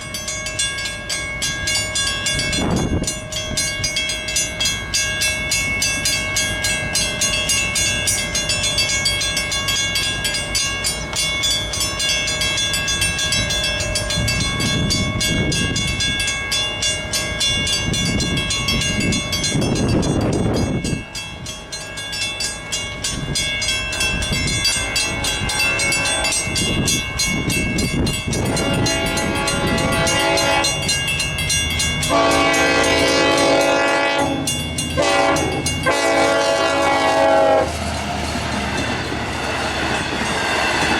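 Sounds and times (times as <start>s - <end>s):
crossing warning bells ringing: 0.0s - 40.9s
train rumbling over rails: 0.0s - 40.9s
train horn chord: 25.0s - 26.7s, 28.4s - 31.0s, 32.1s - 37.8s.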